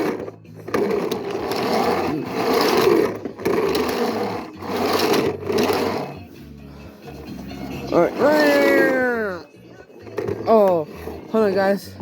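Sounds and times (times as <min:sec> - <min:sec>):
toy truck motor whirring: 0:00.0 - 0:06.3.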